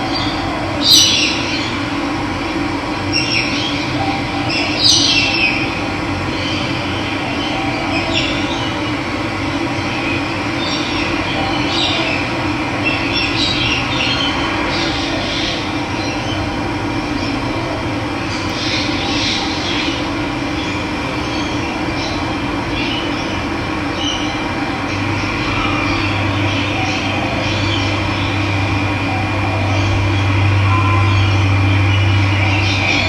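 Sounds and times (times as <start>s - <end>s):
birds chirping: 0.0s - 1.9s, 18.2s - 33.0s.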